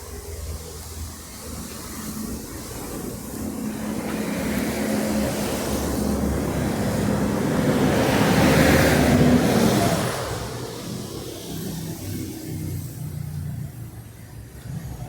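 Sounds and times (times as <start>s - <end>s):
motor vehicle passing: 3.1s - 15.0s.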